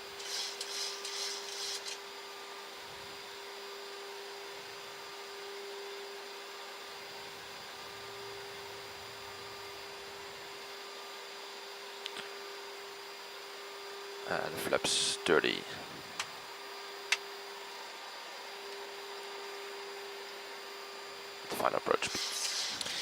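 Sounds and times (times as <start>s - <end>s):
constant hum: 0.0s - 11.4s, 12.0s - 23.0s
sharp hissing burst: 0.2s - 1.8s, 22.0s - 23.0s.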